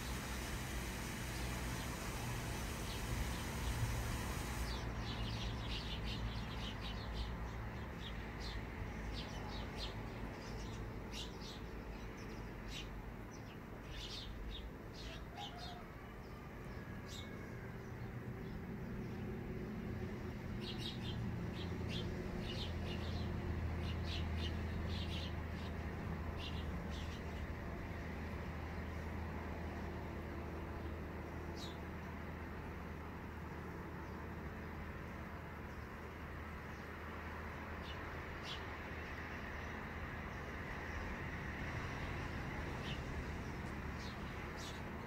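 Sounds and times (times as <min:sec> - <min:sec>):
small birds chirping: 0:00.0 - 0:15.2, 0:42.2 - 0:45.0.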